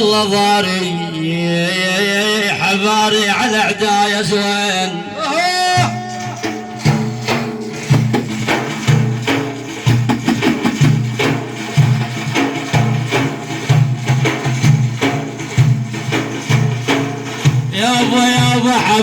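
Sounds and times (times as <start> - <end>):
drum and tambourine strikes: 5.6 - 19.0.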